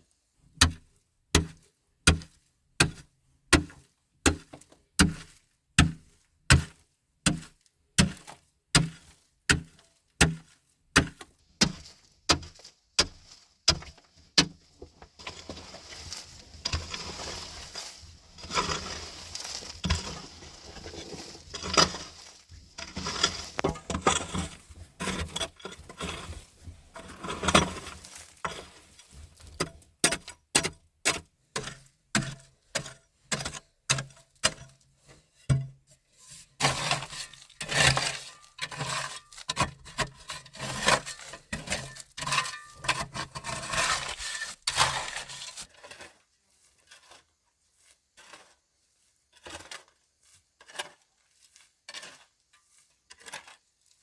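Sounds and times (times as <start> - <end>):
rustling and cracking: 11.8 - 24.8.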